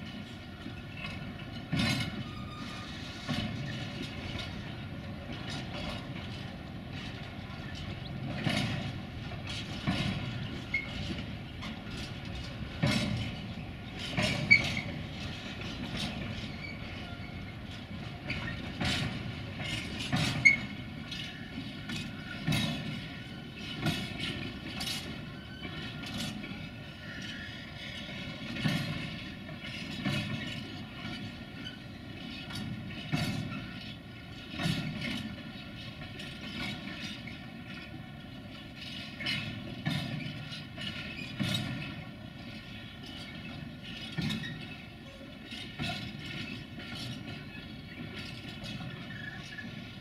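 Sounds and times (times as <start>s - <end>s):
freight train rumbling past: 0.0s - 39.8s
wheels clacking over rail joints: 0.0s - 50.0s
high wheel squeaks: 0.7s - 4.8s, 10.2s - 11.2s, 12.9s - 29.0s, 29.6s - 37.4s, 42.7s - 50.0s.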